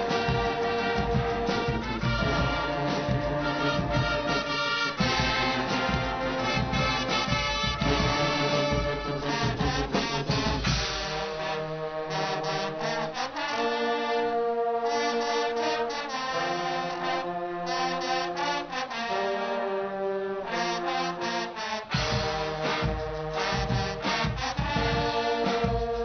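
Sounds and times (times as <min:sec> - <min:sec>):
drums and percussion: 0:00.0 - 0:13.8, 0:20.5 - 0:26.0
brass band chords: 0:00.0 - 0:26.0.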